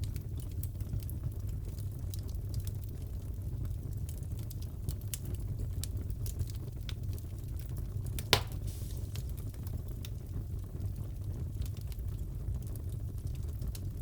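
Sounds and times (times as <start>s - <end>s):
wood fire crackling: 0.0s - 14.0s
sharp loud fire pop: 8.2s - 9.2s.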